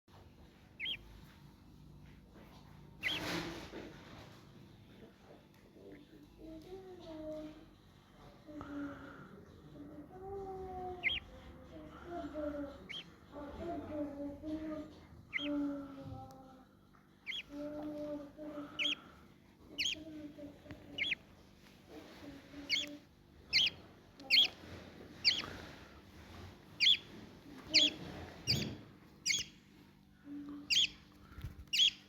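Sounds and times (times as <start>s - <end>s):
lovebird chirping: 0.8s - 1.1s, 3.0s - 3.4s, 11.0s - 11.3s, 12.8s - 13.2s, 15.3s - 15.6s, 17.2s - 17.6s, 18.7s - 19.0s, 19.7s - 20.1s, 20.8s - 21.2s, 22.5s - 24.6s, 25.2s - 25.7s, 26.8s - 29.6s, 30.5s - 32.0s.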